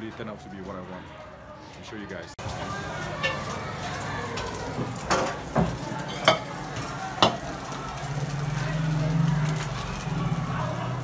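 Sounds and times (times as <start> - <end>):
food sizzling in a wok: 2.4 - 11.0.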